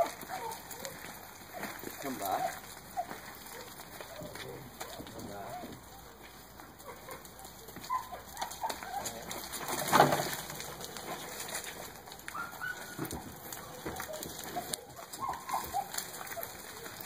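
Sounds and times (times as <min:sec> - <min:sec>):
birds calling: 0:12.1 - 0:17.0.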